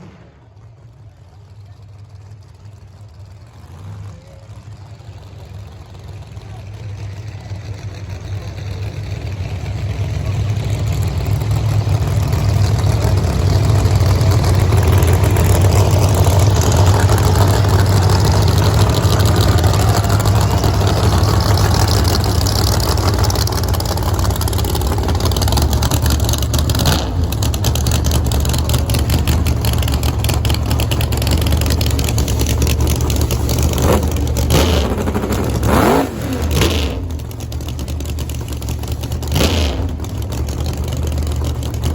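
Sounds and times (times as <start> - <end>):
race car engines revving: 0.0 - 41.9.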